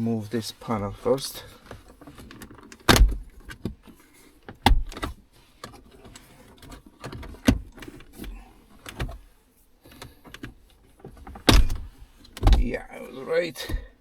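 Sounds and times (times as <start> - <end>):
plastic trim clicks and knocks: 11.1 - 12.7.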